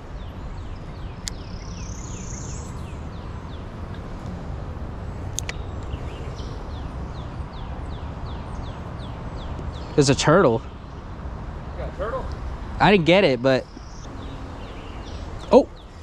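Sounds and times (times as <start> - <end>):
sharp clicks: 5.3 - 5.6.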